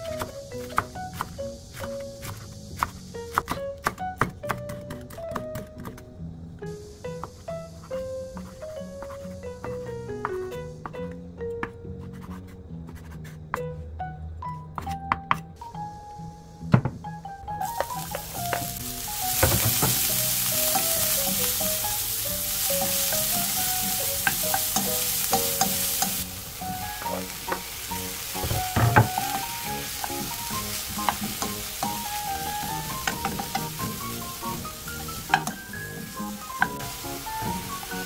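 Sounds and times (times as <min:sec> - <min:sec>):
onions sizzling in oil: 0:00.0 - 0:03.5, 0:06.6 - 0:10.9, 0:15.8 - 0:38.0
spatula knocking against pan: 0:32.9 - 0:33.9, 0:35.3 - 0:35.6.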